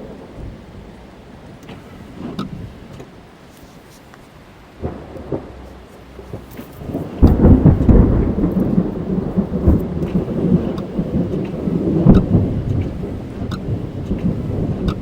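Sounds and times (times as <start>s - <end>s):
thunder rumbling: 0.0s - 3.5s, 4.4s - 15.0s
rain drumming on car: 0.0s - 15.0s.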